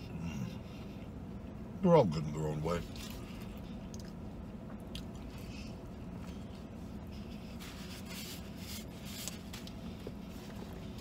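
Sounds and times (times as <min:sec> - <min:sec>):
low car cabin hum: 0:00.0 - 0:11.0
man chewing: 0:02.9 - 0:11.0.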